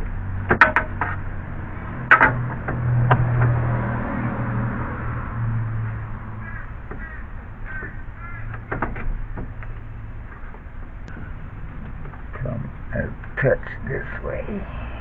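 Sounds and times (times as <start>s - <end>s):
sharp knocks: 0.4s - 1.2s, 2.0s - 3.6s
crow cawing: 5.8s - 8.6s
low steady hum: 7.4s - 15.0s.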